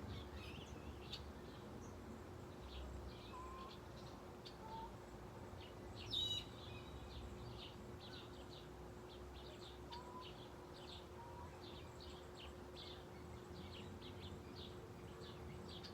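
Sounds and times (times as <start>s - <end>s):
faint steady hum: 0.0s - 15.9s
small birds chirping: 0.0s - 15.9s.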